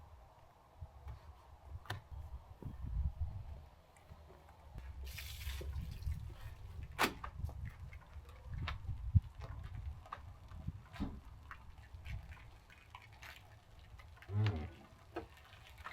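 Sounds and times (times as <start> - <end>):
water dripping: 4.9 - 15.9.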